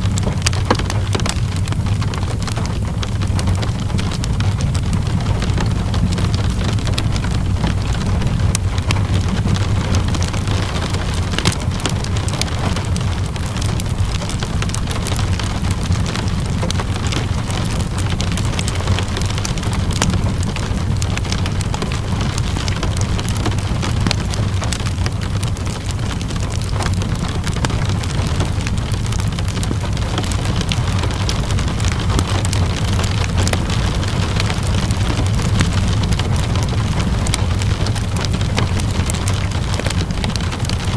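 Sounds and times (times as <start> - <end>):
low rumble: 0.0 - 40.9
steady rainfall: 0.0 - 40.9
wood fire crackling: 0.0 - 40.9.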